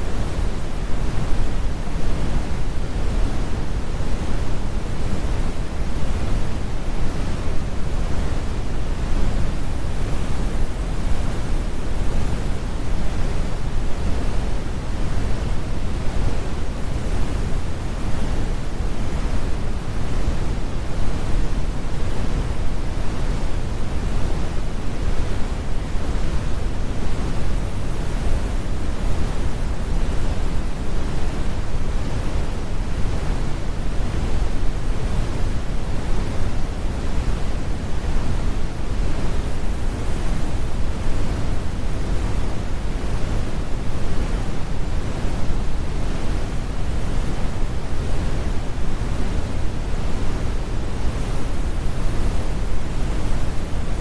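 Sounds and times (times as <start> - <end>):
brown noise rumble: 0.0 - 54.0.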